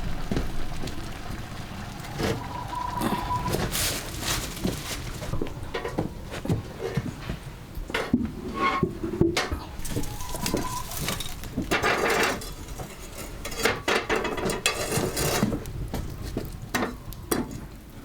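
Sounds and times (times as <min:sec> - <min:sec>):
kitchen utensils and pots clinking: 0:03.0 - 0:07.2, 0:07.9 - 0:15.6.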